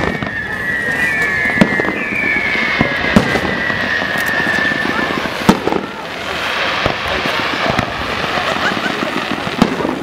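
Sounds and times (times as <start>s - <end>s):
firework whistle falling in pitch: 0.0s - 6.2s
fireworks bangs: 0.0s - 10.0s
fireworks crackling: 0.0s - 10.0s.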